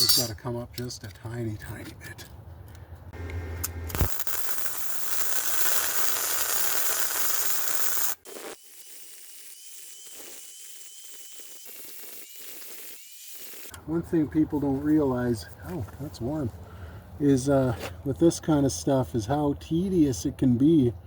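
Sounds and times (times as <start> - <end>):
welder crackling and hissing: 3.9 - 13.8.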